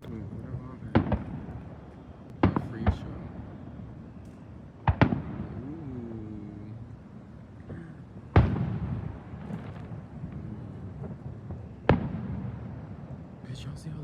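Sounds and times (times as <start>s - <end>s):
sharp bangs: 0.8s - 3.6s, 4.3s - 5.7s, 7.6s - 13.2s.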